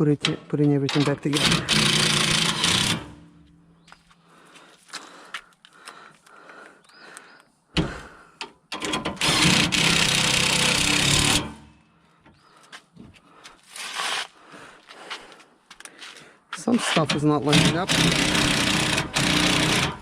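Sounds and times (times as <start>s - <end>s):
knocks and clicks: 0.1s - 3.2s
power tool running: 0.9s - 3.5s, 8.8s - 11.8s, 16.8s - 20.0s.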